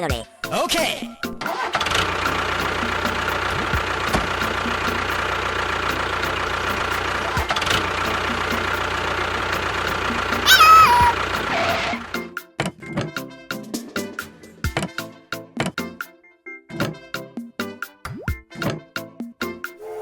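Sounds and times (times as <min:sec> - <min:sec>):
small engine humming: 0:01.5 - 0:12.2
loud tone stepping down in pitch: 0:10.4 - 0:11.2.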